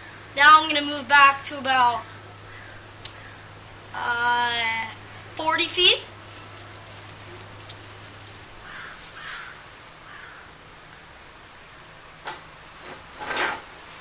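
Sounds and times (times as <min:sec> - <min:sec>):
bird calling: 0:02.1 - 0:03.6, 0:07.0 - 0:11.1
knock or rustle: 0:12.2 - 0:13.7.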